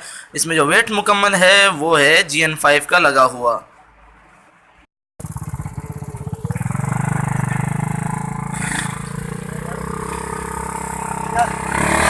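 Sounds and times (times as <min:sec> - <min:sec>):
small motorcycle engine revving: 0:05.2 - 0:12.0.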